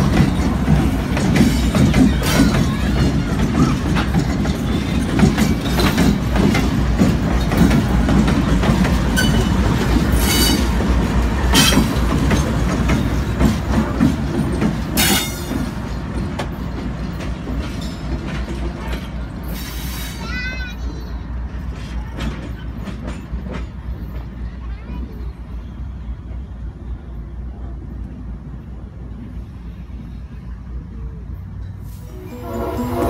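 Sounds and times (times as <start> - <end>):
wheels clicking over rails: 0.0 - 19.9
locomotive engine rumble: 25.3 - 33.0.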